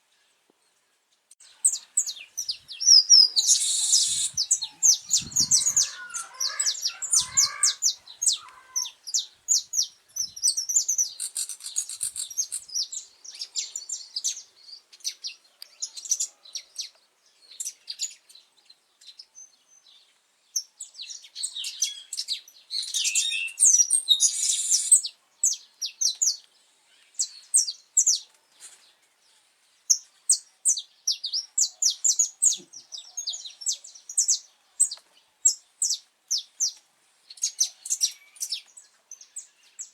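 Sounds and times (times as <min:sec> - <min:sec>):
finch singing: 0:01.6 - 0:16.8.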